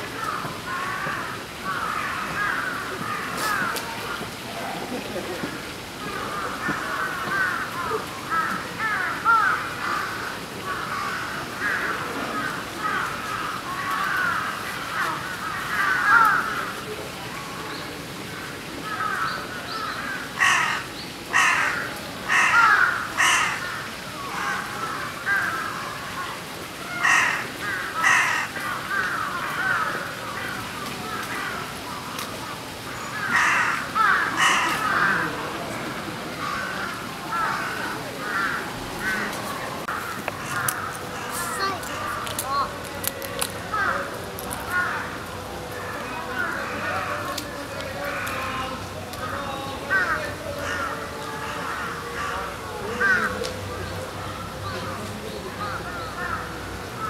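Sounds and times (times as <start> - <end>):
harsh caw-like bird calls: 0.2 - 4.2, 6.1 - 16.7, 18.8 - 26.0, 26.8 - 35.3, 36.4 - 39.3, 39.9 - 42.2.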